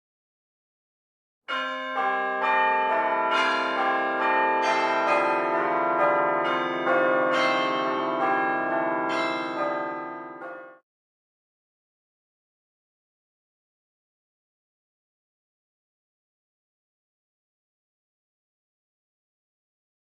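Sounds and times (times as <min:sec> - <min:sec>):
bell-like chiming music: 0:01.5 - 0:10.8.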